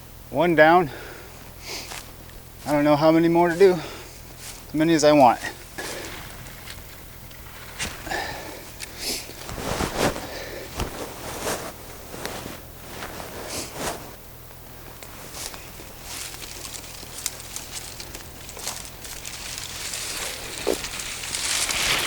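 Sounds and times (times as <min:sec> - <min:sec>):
rustling of saplings and brush: 0:00.0 - 0:22.0
footsteps on forest floor: 0:00.9 - 0:22.0
swishing rustle: 0:03.5 - 0:14.2, 0:15.0 - 0:22.0.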